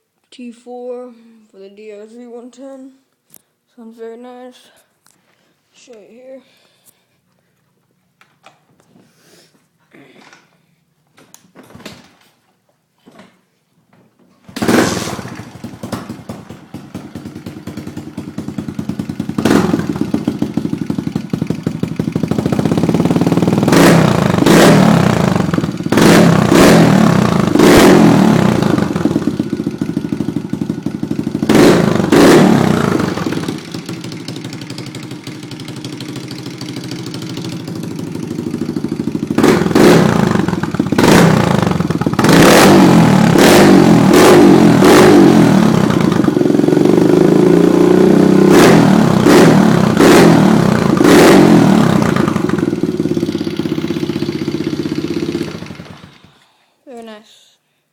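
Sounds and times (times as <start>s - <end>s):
motorcycle engine starting: 14.4s - 56.6s
motorcycle engine idling and revving: 14.5s - 56.5s.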